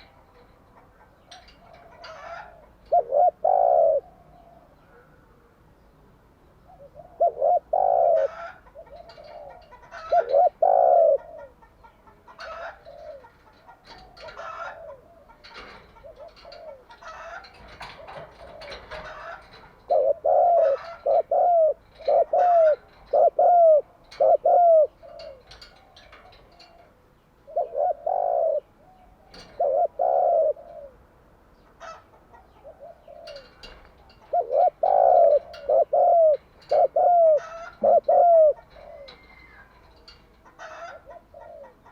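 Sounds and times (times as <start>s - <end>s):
doves cooing: 0.0s - 5.6s, 6.6s - 41.9s
small birds chirping: 0.0s - 41.9s.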